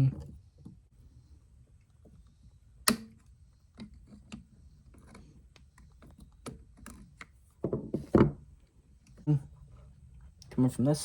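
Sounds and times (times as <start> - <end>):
clicks and knocks handling parts: 1.8 - 9.3.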